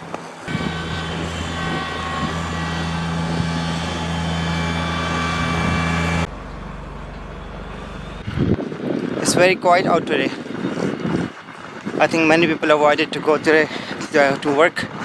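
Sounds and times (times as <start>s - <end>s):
snow blower engine running: 0.2s - 8.3s.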